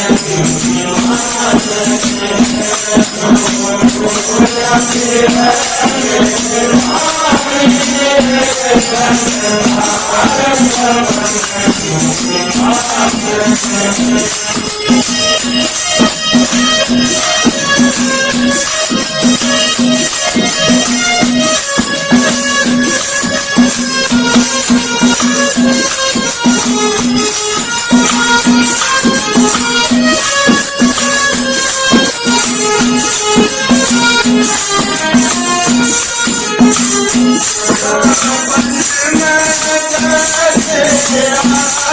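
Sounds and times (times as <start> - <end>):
person singing: 0.0 - 16.2, 27.9 - 41.9
jingling hand percussion: 0.0 - 41.9.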